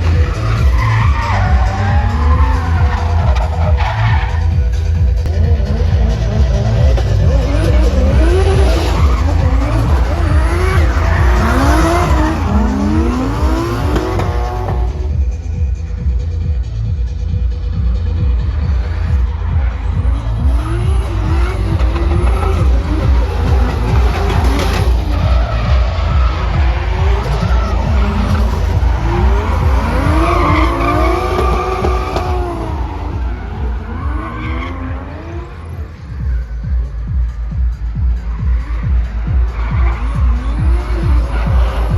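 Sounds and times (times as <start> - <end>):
tyre squeal: 0.0 - 4.8, 7.3 - 15.0, 18.8 - 36.5
car engine revving hard: 0.0 - 15.6, 17.6 - 36.4, 38.0 - 41.9
thumping music beat: 0.0 - 41.9.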